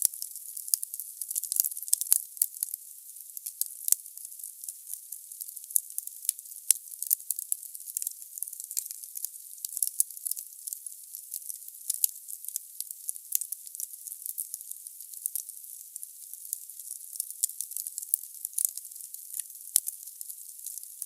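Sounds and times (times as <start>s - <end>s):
logs crackling in fireplace: 5.5s - 10.4s, 16.2s - 20.0s.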